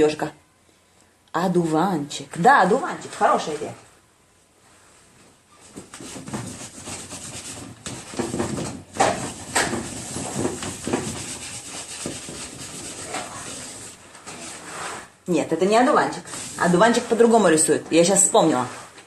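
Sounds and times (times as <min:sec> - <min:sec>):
drawing tool scratching paper: 0:05.9 - 0:15.0, 0:16.2 - 0:17.3.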